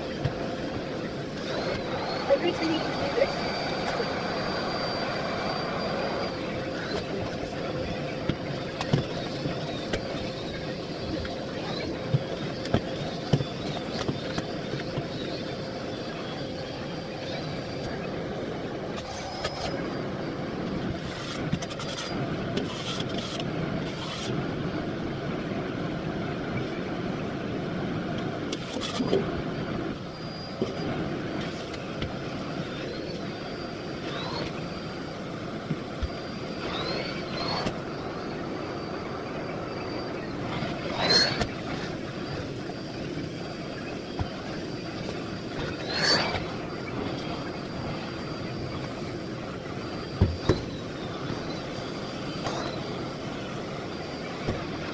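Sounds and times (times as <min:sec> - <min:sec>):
vacuum cleaner running: 0:00.0 - 0:21.4, 0:29.8 - 0:54.9.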